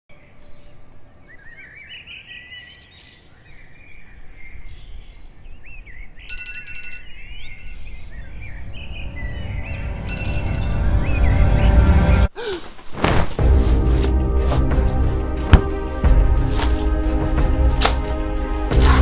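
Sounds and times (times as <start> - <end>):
songbirds chirping and singing: 0.1 - 12.3
low rumble: 8.0 - 12.3.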